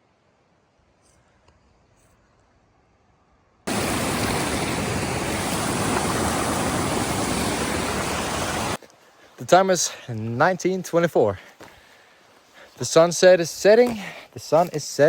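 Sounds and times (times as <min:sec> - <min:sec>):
rushing water: 0:03.7 - 0:08.8.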